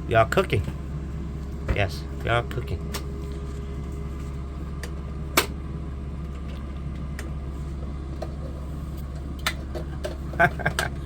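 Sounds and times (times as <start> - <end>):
power generator humming: 0.0 - 11.0.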